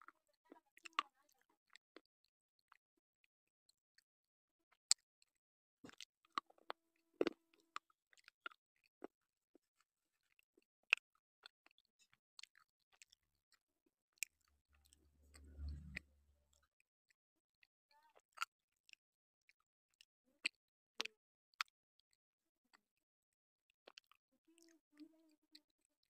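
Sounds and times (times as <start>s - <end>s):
crunching clicks of chewing: 4.9s - 13.6s, 18.1s - 22.8s, 23.8s - 24.7s.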